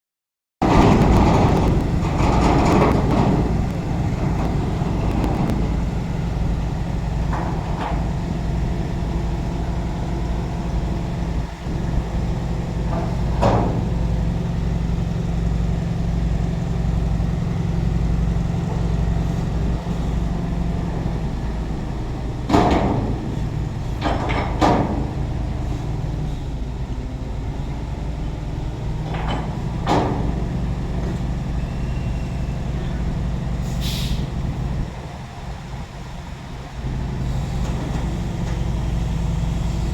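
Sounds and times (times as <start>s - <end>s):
diesel truck engine running: 0.6s - 39.9s.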